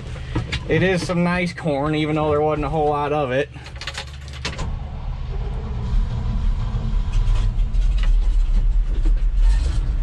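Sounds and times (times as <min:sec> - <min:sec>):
harvester engine droning: 0:03.3 - 0:09.3.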